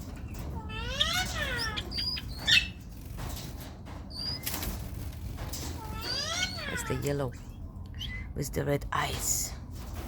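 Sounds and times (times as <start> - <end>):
wings fluttering: 0.0 - 7.3
parrot squawk: 0.6 - 2.7, 5.8 - 7.0
parrot calling: 5.8 - 7.0.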